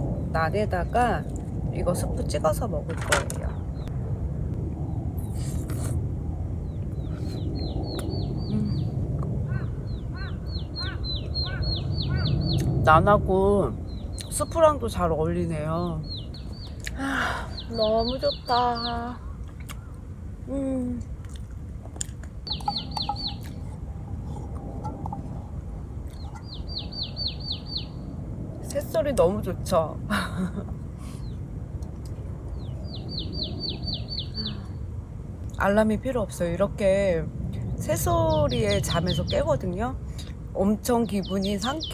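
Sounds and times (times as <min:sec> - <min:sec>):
low rumble: 0:00.0 - 0:41.1
bird singing whistled notes: 0:22.5 - 0:23.4, 0:26.2 - 0:28.0, 0:32.6 - 0:34.6
songbird whistling: 0:22.5 - 0:23.5
bird call notes: 0:22.5 - 0:23.6.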